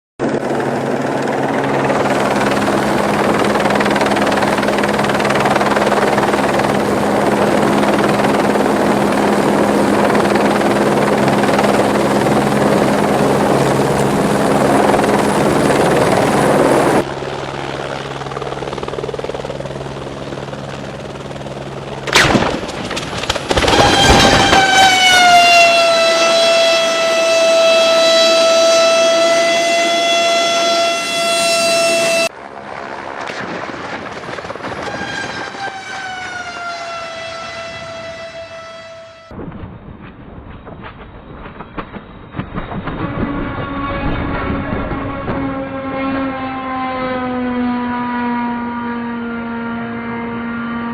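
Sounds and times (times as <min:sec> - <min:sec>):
helicopter running: 0:00.2 - 0:50.9
sharp crash and impacts: 0:22.1 - 0:24.7
loud high tone: 0:23.6 - 0:32.3, 0:34.9 - 0:39.3.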